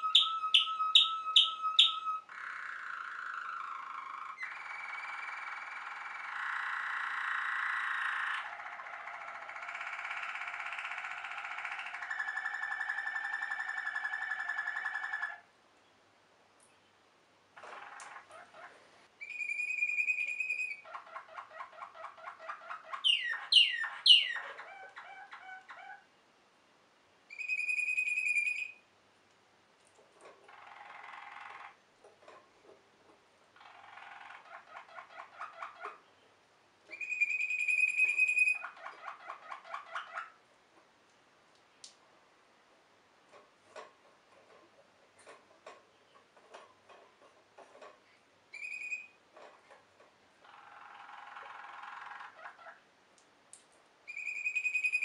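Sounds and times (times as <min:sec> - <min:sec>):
canary singing: 0:00.0 - 0:15.5, 0:17.6 - 0:26.1, 0:27.3 - 0:28.9, 0:30.2 - 0:32.8, 0:33.6 - 0:40.5, 0:45.2 - 0:49.8, 0:50.4 - 0:52.9, 0:54.1 - 0:55.0.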